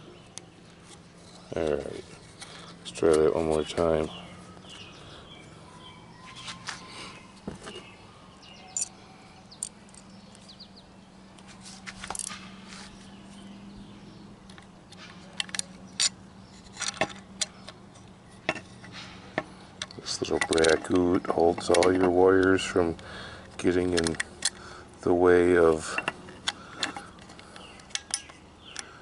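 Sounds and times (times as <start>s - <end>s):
faint steady hum: 0.0s - 29.0s
metallic clicks of tools and parts: 8.7s - 10.4s, 14.5s - 22.8s, 23.4s - 24.6s, 25.7s - 28.9s.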